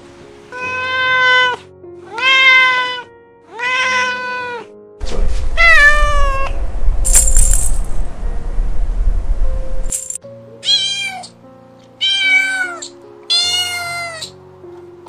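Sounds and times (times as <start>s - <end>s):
faint background music: 0.0s - 15.0s
cat meowing: 0.5s - 4.7s, 5.6s - 6.6s, 10.6s - 11.4s, 12.0s - 14.4s
low rumble: 5.0s - 10.2s.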